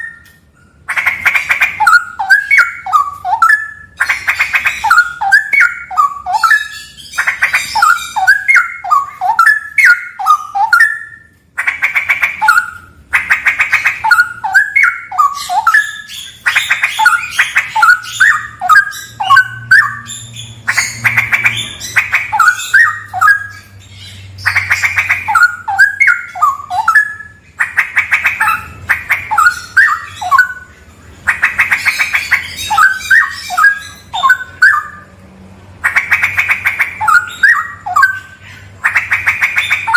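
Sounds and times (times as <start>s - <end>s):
songbird singing: 0.0s - 35.2s, 35.8s - 39.9s.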